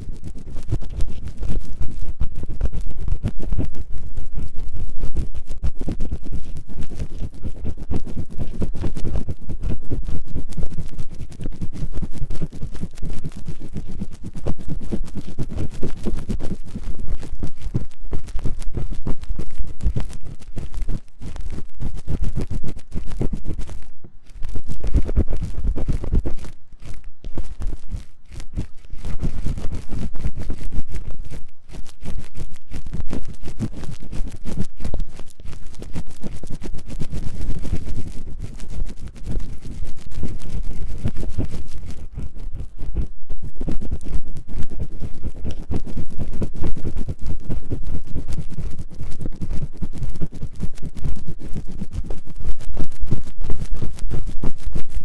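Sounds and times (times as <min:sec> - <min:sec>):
scratching on microphone ears: 0:00.0 - 0:55.0.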